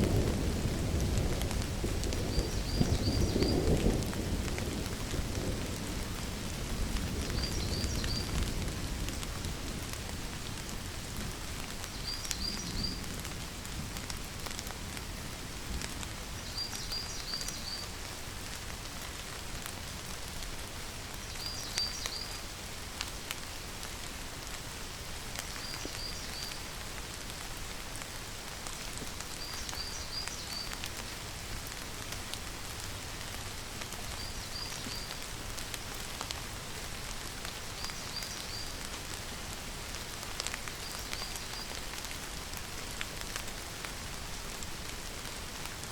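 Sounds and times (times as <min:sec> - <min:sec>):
rain pattering: 0:00.0 - 0:45.9.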